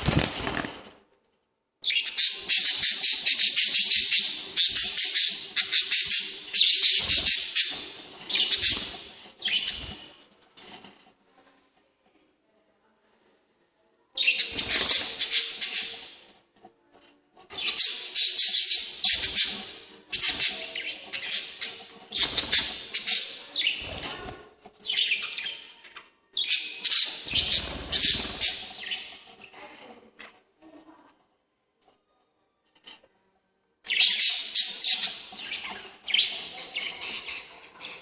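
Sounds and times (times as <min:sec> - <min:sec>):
lovebirds chirping shrilly: 0:01.9 - 0:10.0, 0:26.4 - 0:29.2.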